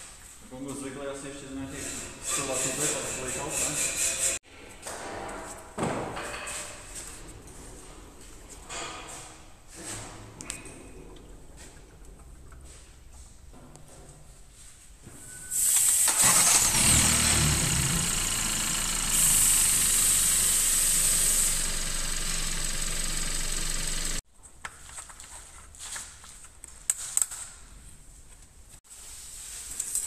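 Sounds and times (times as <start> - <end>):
car engine starting and idling: 15.6 - 24.2.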